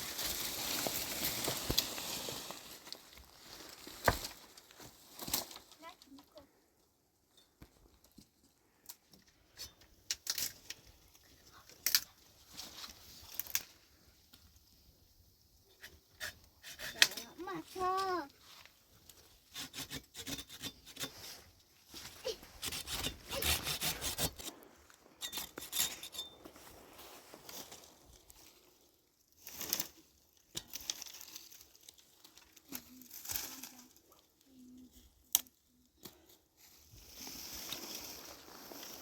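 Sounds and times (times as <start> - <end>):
rustles: 0.0 - 6.5, 7.3 - 14.9, 16.8 - 39.0
rasping scraping strokes: 19.5 - 21.5, 22.2 - 26.4.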